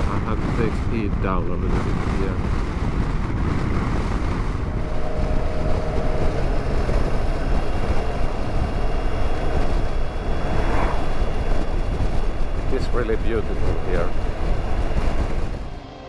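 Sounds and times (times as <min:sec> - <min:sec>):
wind rushing on microphone: 0:00.0 - 0:16.0
motorcycle engine running: 0:01.7 - 0:16.0.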